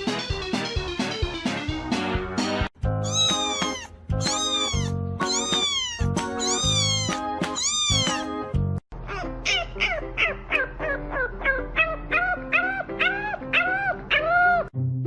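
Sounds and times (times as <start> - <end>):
background music: 0.0 - 15.0
cat meowing loudly: 3.0 - 8.3.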